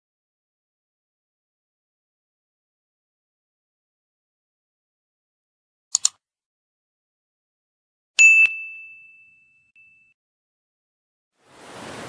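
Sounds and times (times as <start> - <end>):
quick clicks: 5.9 - 6.2
bright bell-like ding: 8.2 - 10.2.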